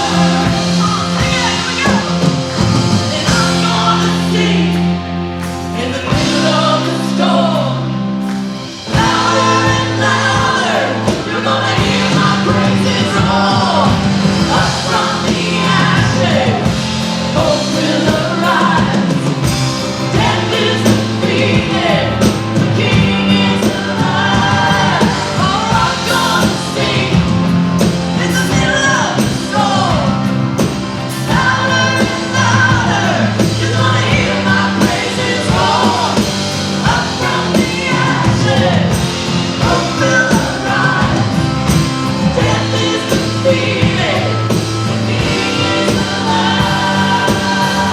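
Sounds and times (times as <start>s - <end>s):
person singing: 0.0s - 5.0s, 31.1s - 47.9s
rock band playing: 0.0s - 47.9s.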